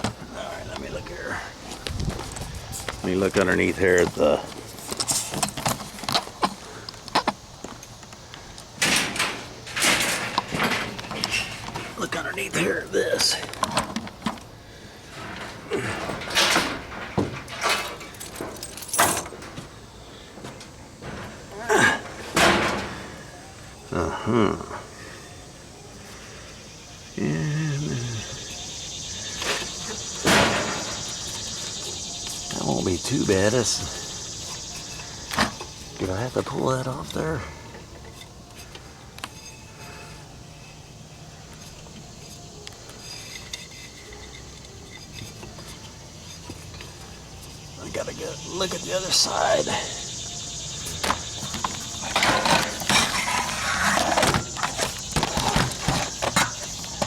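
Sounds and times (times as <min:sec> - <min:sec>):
clanks and scrapes of tools: 0:03.9 - 0:12.2, 0:13.2 - 0:19.7, 0:20.4 - 0:23.3, 0:37.5 - 0:40.8, 0:41.5 - 0:47.7, 0:50.1 - 0:57.0.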